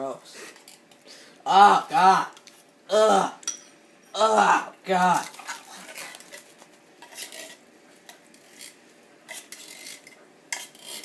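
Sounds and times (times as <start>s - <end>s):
metal utensil scraping a can: 5.2s - 11.0s.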